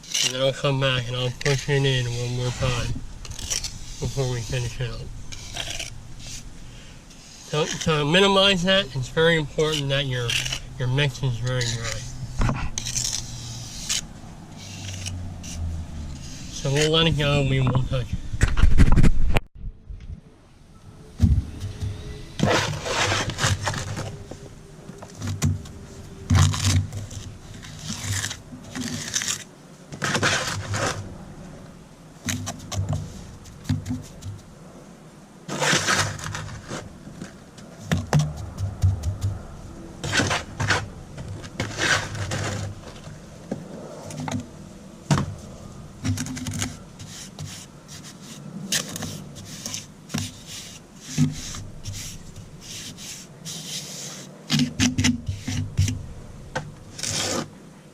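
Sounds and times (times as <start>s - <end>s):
hand tool scraping on concrete: 0.0s - 17.8s, 21.7s - 25.4s, 26.0s - 31.1s, 35.5s - 38.5s, 40.0s - 43.2s, 46.1s - 56.0s, 56.9s - 57.5s.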